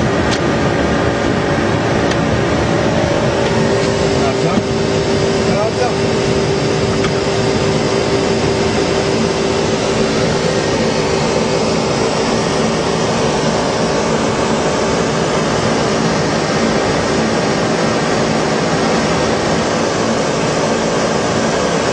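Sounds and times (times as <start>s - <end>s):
airflow and air-conditioning rush: 0.0s - 21.9s.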